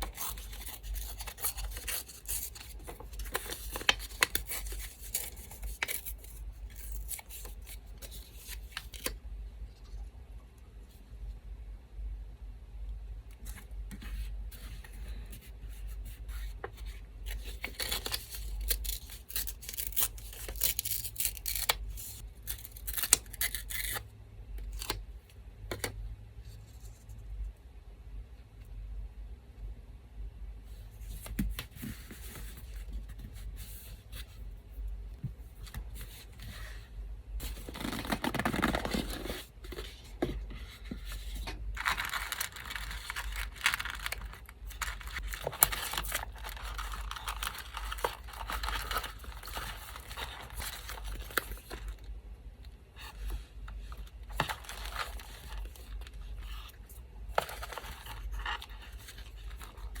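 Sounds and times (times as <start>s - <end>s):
paper tearing and rustling: 0.0s - 9.1s, 17.4s - 24.0s, 37.4s - 39.9s, 41.8s - 51.9s, 54.3s - 56.0s.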